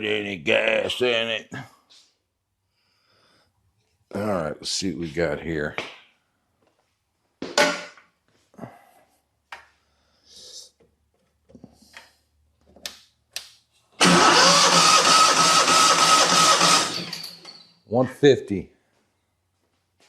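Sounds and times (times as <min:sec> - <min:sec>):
electric starter cranking engine: 0:14.0 - 0:17.6.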